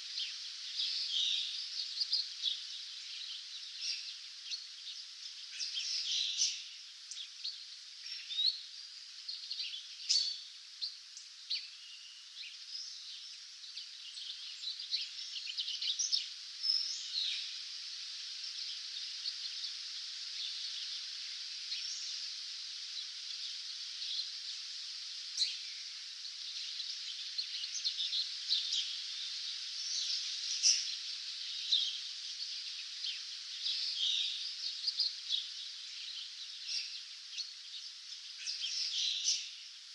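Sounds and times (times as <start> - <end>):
songbirds chirping and trilling: 0.0 - 39.9
steady high hiss: 0.0 - 39.9.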